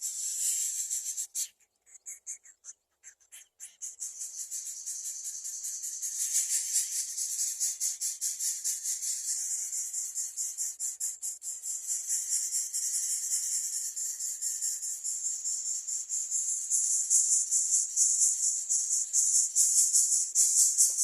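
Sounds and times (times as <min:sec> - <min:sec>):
insect trilling: 0:00.0 - 0:10.6.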